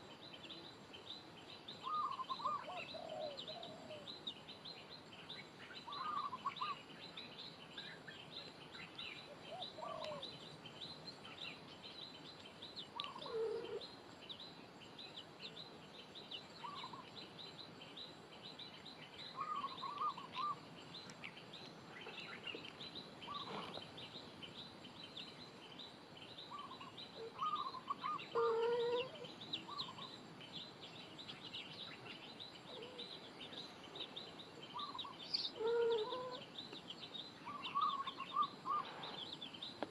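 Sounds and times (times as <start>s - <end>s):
birds chirping chorus: 0.0s - 39.9s
short lower bird calls: 1.8s - 4.1s, 5.6s - 6.8s, 19.3s - 20.6s, 23.2s - 24.0s, 26.5s - 30.2s, 34.7s - 36.6s, 37.4s - 39.3s.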